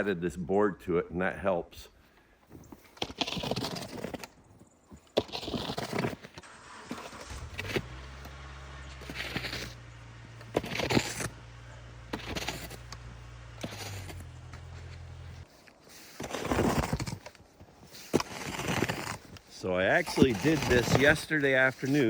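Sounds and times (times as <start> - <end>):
low steady hum: 6.5 - 15.5
broom sweeping snow: 6.5 - 16.8, 17.8 - 22.0.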